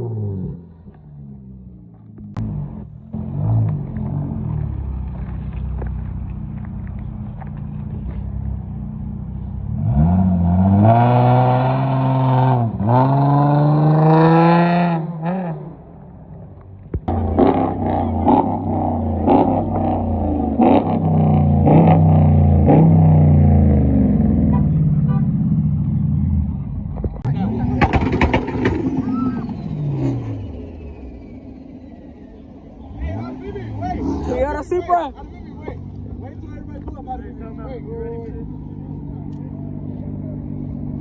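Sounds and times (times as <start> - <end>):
car engine revving: 0.0 - 41.0
sharp engine pops: 27.0 - 29.4.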